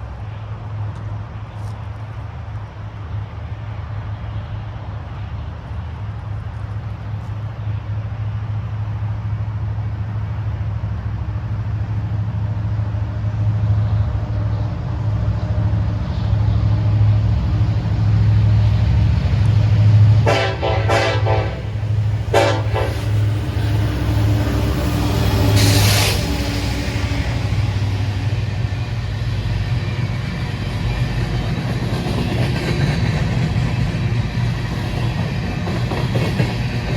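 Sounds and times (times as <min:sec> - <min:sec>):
diesel locomotive rumbling: 0:00.0 - 0:36.9
rush of passing train: 0:00.0 - 0:36.9
locomotive horn blasts: 0:20.2 - 0:23.3.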